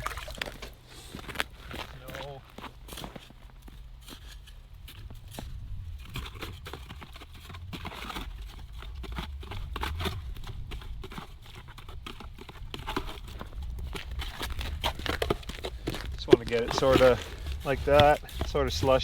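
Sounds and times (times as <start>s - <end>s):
steady low rumble: 4.7s - 12.0s, 13.2s - 19.0s
wet slush crunching and scraping: 5.2s - 19.0s.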